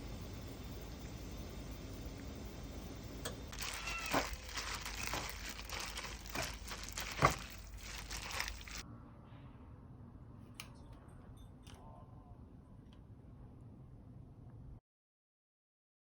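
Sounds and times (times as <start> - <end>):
crinkly material rustling: 3.5 - 8.8.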